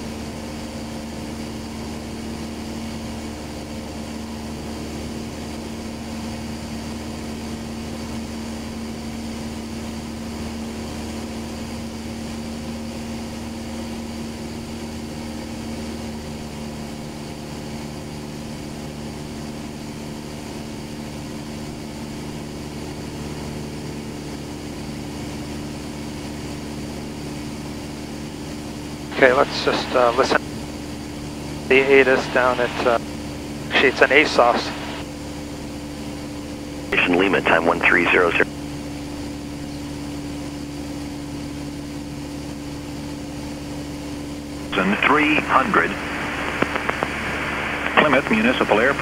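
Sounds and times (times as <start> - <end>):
aircraft engine droning: 0.0 - 49.0
low hum: 18.7 - 49.0.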